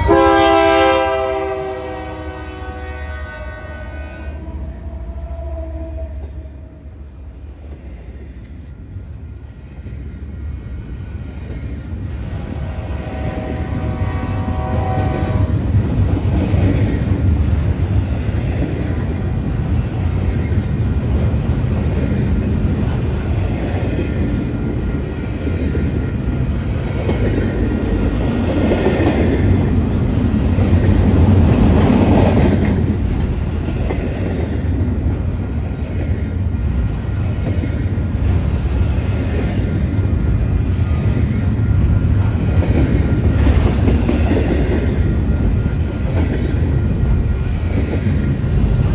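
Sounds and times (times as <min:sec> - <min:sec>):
train horn blast: 0:00.0 - 0:06.9, 0:12.6 - 0:15.8
train rumbling on rails: 0:00.0 - 0:48.9.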